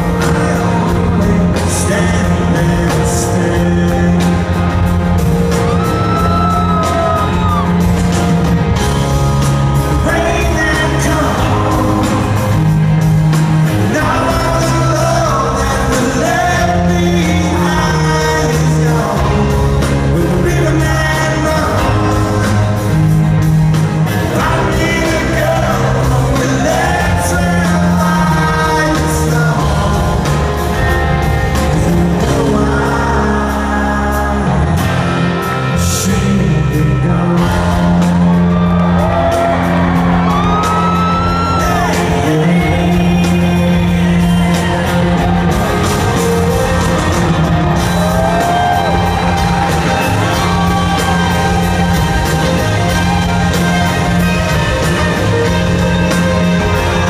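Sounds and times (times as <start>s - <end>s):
live rock band playing: 0.0s - 57.0s
man singing: 0.0s - 57.0s
audience shouts and whoops: 5.4s - 9.3s, 38.0s - 57.0s.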